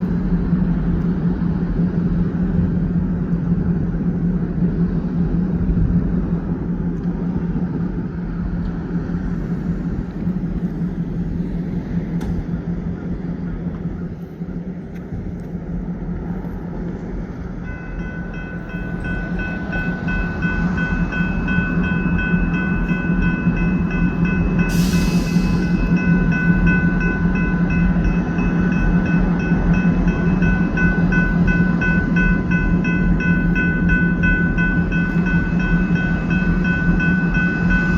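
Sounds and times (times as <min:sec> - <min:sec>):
rail and wheel rumble: 0:00.0 - 0:37.9
train engine drone: 0:00.0 - 0:37.9
steady high-pitched tones: 0:09.5 - 0:37.9.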